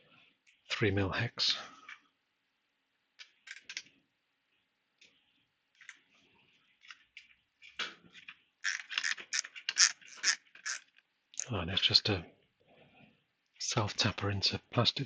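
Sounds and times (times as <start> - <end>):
hex key clicking and scraping: 8.6 - 10.8.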